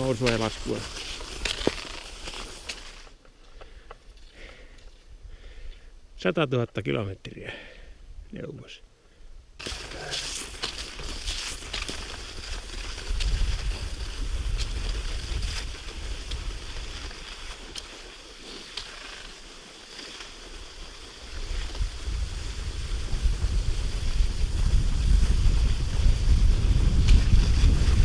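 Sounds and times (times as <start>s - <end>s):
wind buffeting microphone: 12.7s - 17.0s, 21.4s - 28.0s.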